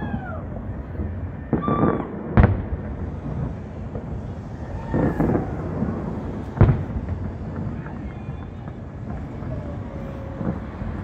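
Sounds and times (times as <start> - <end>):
fireworks bangs: 0.0 - 11.0
voices calling out: 4.3 - 6.7, 7.4 - 11.0.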